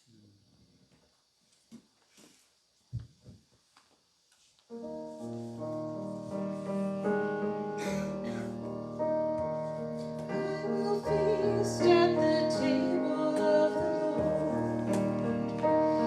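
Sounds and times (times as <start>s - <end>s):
keyboard playing slow chords: 4.9s - 16.0s.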